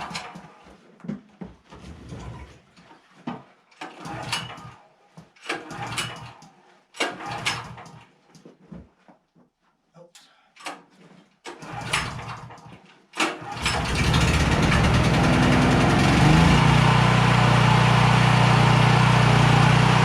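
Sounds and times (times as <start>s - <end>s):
generator recoil starter pulls: 5.4s - 6.4s, 7.0s - 8.1s, 11.5s - 16.7s.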